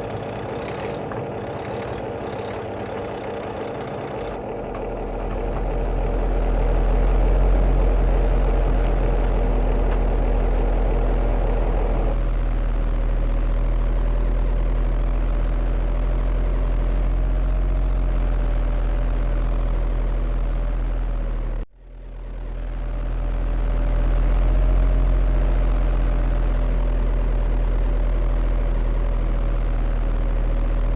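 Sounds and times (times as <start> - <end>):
small electric motors humming: 0.0 - 12.2.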